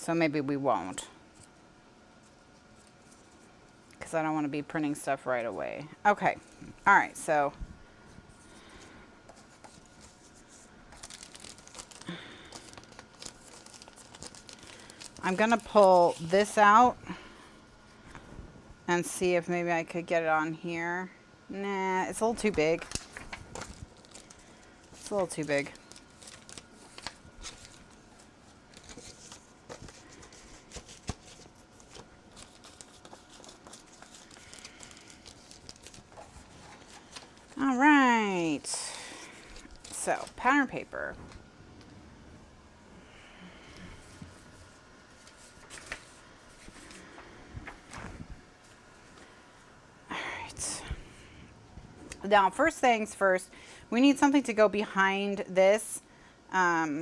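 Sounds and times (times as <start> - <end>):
paper rustling and crinkling: 2.2 - 3.9, 8.0 - 17.0, 22.4 - 42.0, 43.7 - 49.3.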